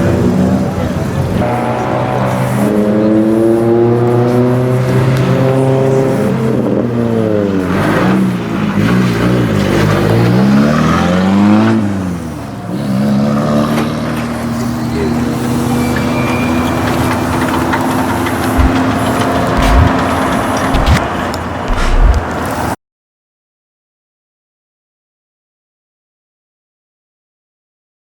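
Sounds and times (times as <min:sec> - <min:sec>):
car engine revving: 0:00.0 - 0:15.8, 0:16.8 - 0:22.6.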